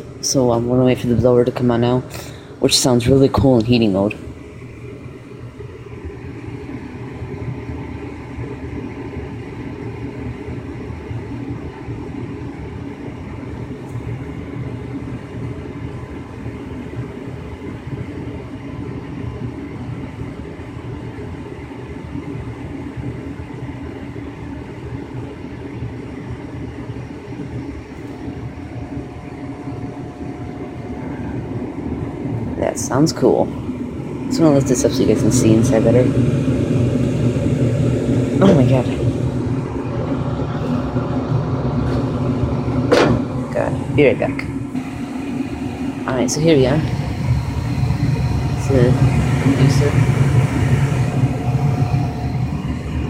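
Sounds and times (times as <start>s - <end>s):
gas furnace rumbling whoosh: 0.0s - 53.0s.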